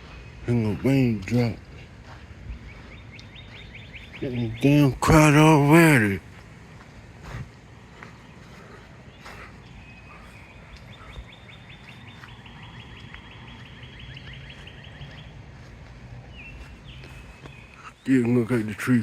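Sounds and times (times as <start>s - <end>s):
bird singing fast trill: 0.0s - 6.2s, 8.2s - 15.7s
bird chirps: 0.0s - 19.0s
low wind noise: 0.0s - 19.0s.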